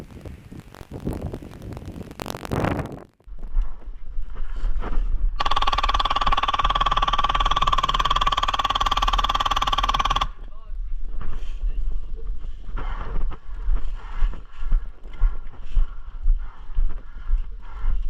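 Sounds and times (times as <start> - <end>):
airsoft gun full-auto burst: 5.4 - 10.4.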